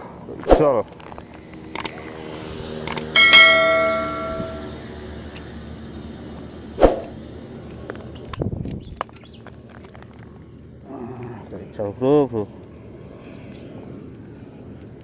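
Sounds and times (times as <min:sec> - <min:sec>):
bell ringing: 0:03.2 - 0:04.8.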